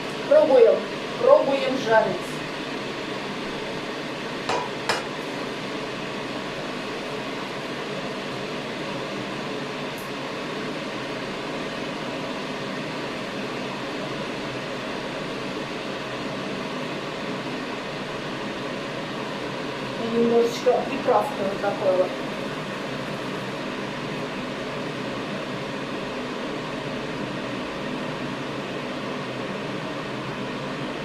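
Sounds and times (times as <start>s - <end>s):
steady kitchen hiss: 0.0s - 31.0s
utensil knocking on frying pan: 4.5s - 5.2s.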